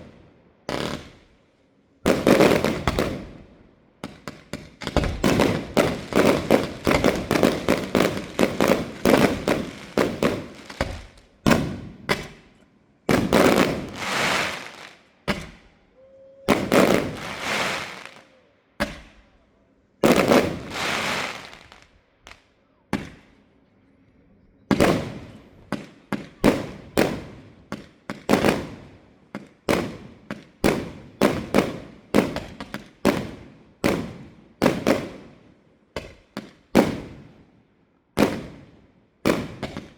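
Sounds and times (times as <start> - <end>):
firework bursts with crackling tails: 0.0 - 1.4, 2.0 - 12.5, 13.1 - 15.7, 16.5 - 18.4, 20.0 - 22.4, 24.7 - 35.4
firework bangs: 2.1 - 3.4, 4.0 - 12.5, 13.1 - 15.7, 16.5 - 19.2, 20.0 - 23.4, 24.7 - 35.2.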